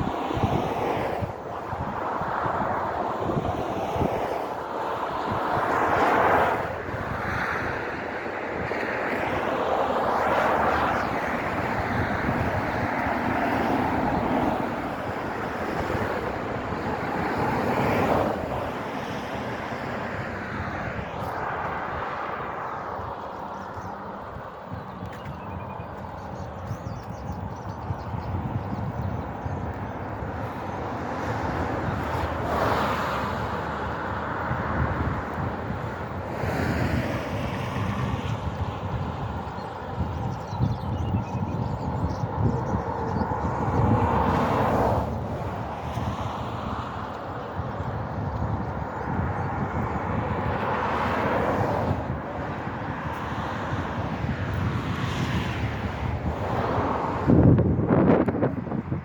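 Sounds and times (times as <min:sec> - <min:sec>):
wind rumbling on microphone: 0:00.0 - 0:59.0
vehicle passing on wet road: 0:30.2 - 0:38.3.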